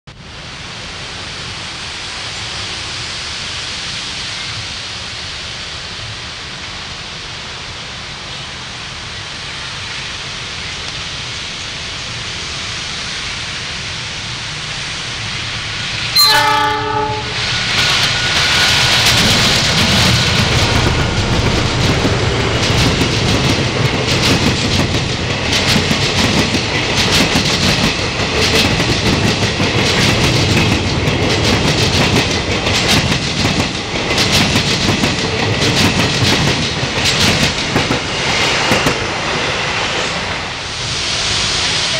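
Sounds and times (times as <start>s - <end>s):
train passing: 0.1s - 41.9s
train horn blast: 16.2s - 17.8s
wheels clacking over rail joints: 17.6s - 40.0s.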